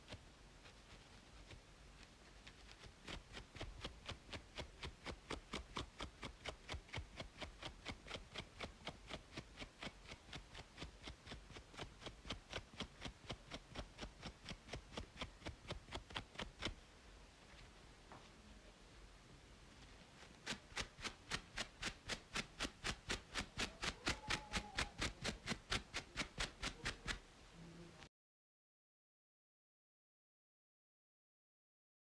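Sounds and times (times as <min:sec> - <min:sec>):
scratching on braided scalp: 0:00.0 - 0:16.8, 0:19.8 - 0:27.2.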